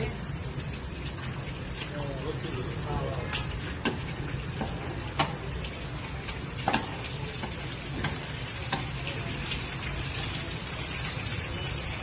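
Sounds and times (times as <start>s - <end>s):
egg sizzling in hot oil: 0.1s - 12.0s.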